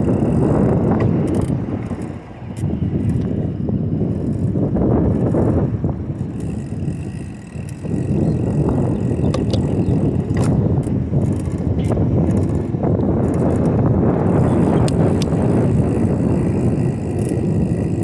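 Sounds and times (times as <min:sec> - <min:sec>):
bicycle tyres rumbling on pavement: 0:00.0 - 0:18.0
wind buffeting microphone: 0:00.0 - 0:18.0
sharp clicks: 0:09.0 - 0:13.8, 0:14.4 - 0:15.6.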